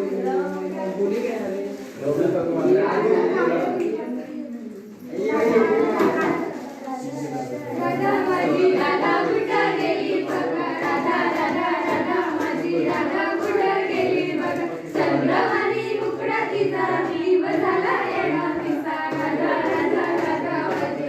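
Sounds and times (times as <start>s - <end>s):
young voices singing: 5.0s - 21.0s.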